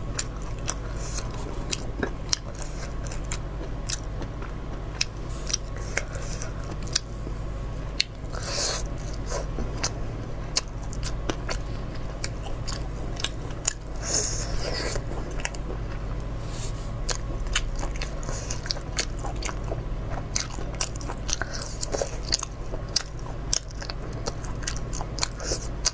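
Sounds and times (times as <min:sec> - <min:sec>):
steady low hum: 0:00.0 - 0:25.9
wet chewing and crunching: 0:00.0 - 0:25.9.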